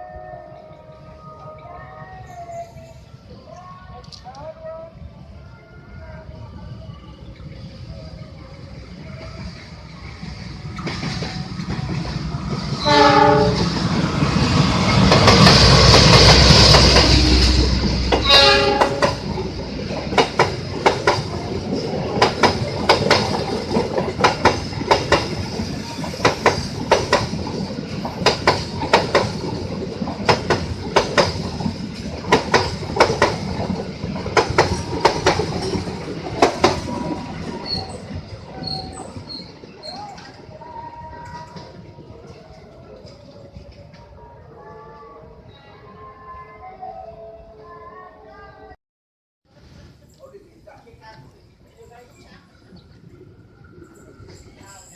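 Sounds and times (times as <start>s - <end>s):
train horn: 0.0s - 2.4s, 12.7s - 13.8s, 17.0s - 19.4s
train rumble: 0.0s - 48.6s, 49.5s - 54.9s
wheels clacking over rail joints: 10.2s - 44.1s.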